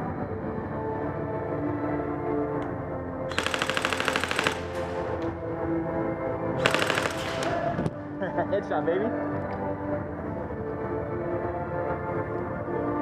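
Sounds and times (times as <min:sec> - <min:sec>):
background music: 0:00.0 - 0:13.0
airsoft rifle full-auto bursts: 0:03.3 - 0:05.2, 0:06.6 - 0:07.7.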